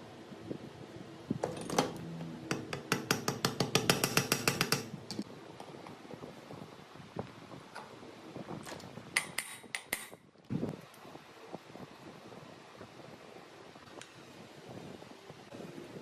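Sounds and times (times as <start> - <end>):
sharp taps on metal: 2.5 - 5.0, 9.2 - 10.2.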